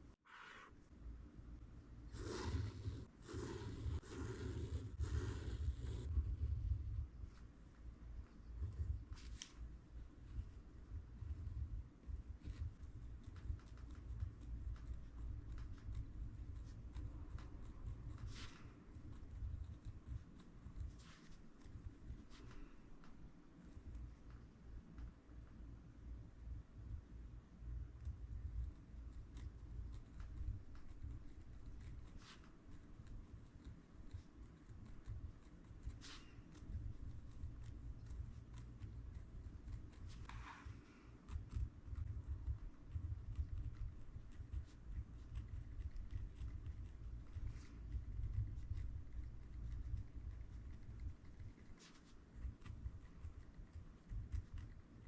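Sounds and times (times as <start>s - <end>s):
paper swish: 2.1s - 6.1s, 18.2s - 18.8s, 35.9s - 36.4s, 40.1s - 41.0s
pen scratching on paper: 2.1s - 6.2s, 12.5s - 22.7s, 28.0s - 55.0s.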